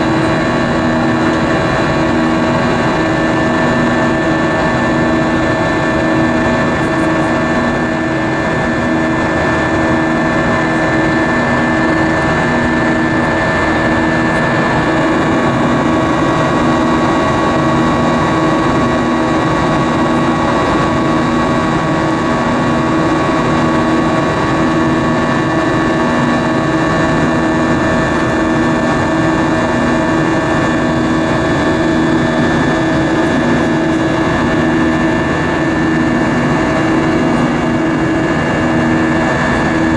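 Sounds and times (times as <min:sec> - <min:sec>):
jet engine cabin roar: 0:00.0 - 0:39.9.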